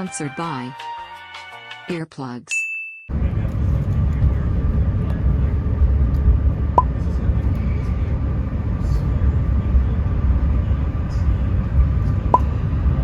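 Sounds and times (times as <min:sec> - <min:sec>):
tram wheels rumbling: 0:03.1 - 0:13.0.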